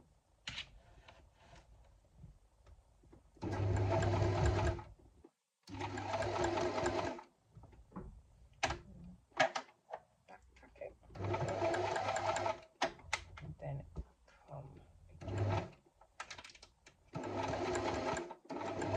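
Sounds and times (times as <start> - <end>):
sewing machine stitching: 3.4 - 4.9, 5.7 - 7.2, 11.1 - 12.7, 15.2 - 15.8, 17.1 - 18.9.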